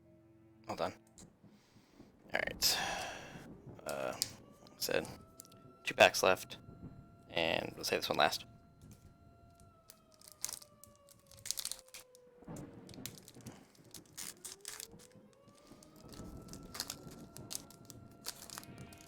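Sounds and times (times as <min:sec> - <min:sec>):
foil wrapper crinkling and tearing: 0:03.9 - 0:04.3, 0:09.9 - 0:19.0.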